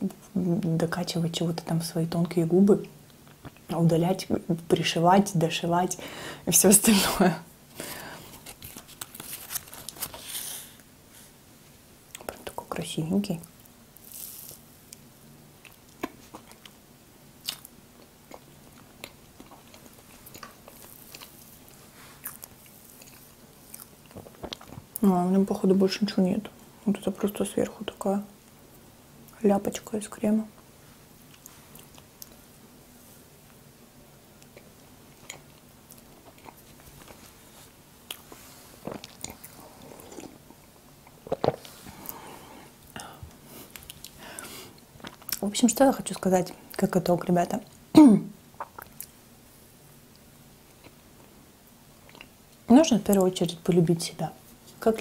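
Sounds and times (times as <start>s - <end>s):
person chewing soft food: 14.0s - 16.8s, 17.4s - 25.0s, 31.2s - 32.4s, 34.3s - 45.4s, 48.6s - 49.2s, 50.1s - 51.4s, 52.0s - 52.6s
mouth clicks and smacks: 48.6s - 49.2s.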